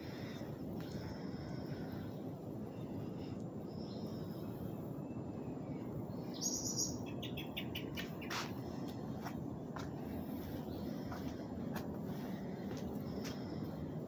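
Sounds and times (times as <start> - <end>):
low background rumble: 0.0 - 14.0
bird chirping: 3.7 - 8.6.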